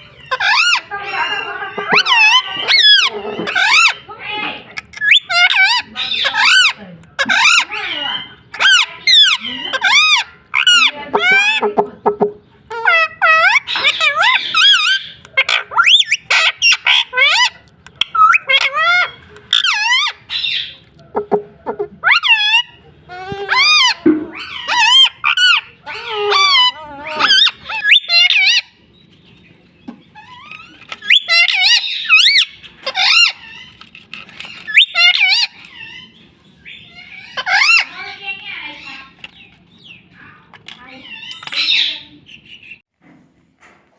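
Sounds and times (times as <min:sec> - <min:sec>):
parrot squawking and whistling: 0:00.2 - 0:04.0, 0:04.9 - 0:11.8, 0:12.7 - 0:28.8, 0:30.2 - 0:33.8, 0:34.4 - 0:38.2.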